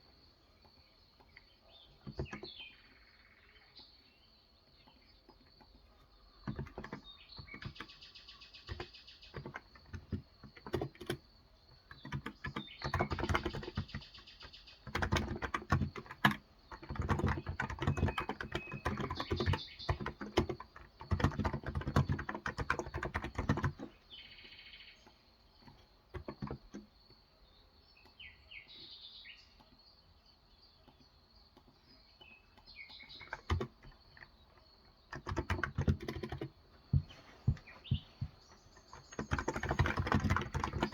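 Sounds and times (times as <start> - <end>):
birds chirping: 0.0 - 40.9
keyboard typing: 1.2 - 2.6, 5.2 - 8.0, 8.6 - 11.3, 11.9 - 24.0, 25.0 - 26.9, 32.5 - 40.9.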